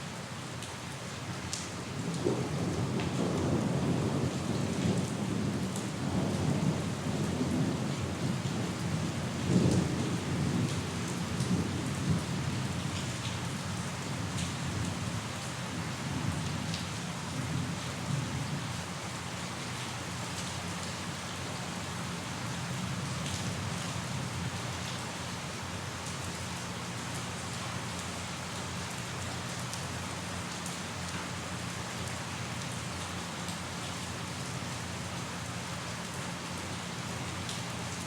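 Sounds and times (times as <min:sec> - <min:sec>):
steady rain: 0:00.0 - 0:38.0
rain drop ticks: 0:01.5 - 0:02.2
rolling thunder: 0:02.1 - 0:08.4.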